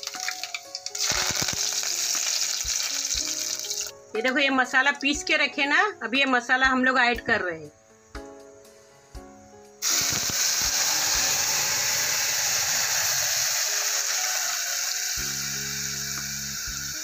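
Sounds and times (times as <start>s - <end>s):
paste sizzling in hot oil: 0.0s - 4.0s, 9.8s - 17.0s
background music: 0.0s - 17.0s.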